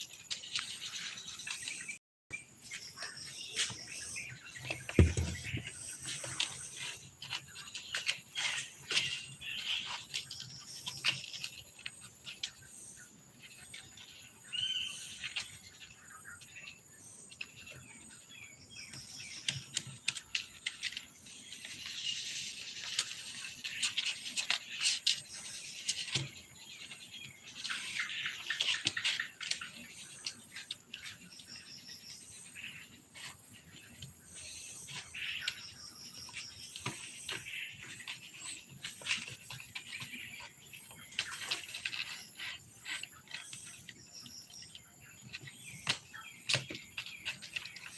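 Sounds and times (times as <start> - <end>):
birds chirping: 0.8 - 7.0.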